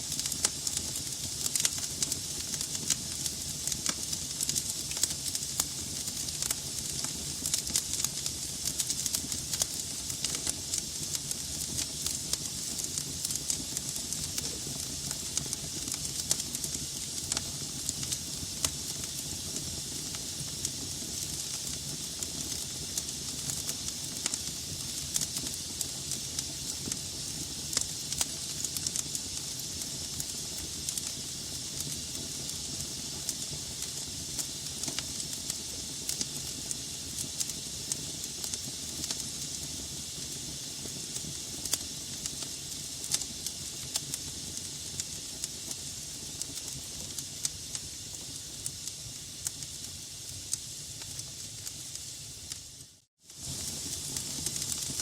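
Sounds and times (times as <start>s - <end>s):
fire crackles and pops: 0.0s - 55.0s
fire hiss: 0.0s - 55.0s.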